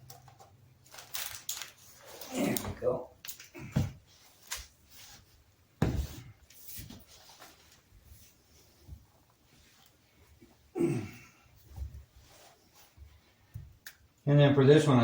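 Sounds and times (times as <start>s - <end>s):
objects knocking and clattering: 5.8s - 6.3s.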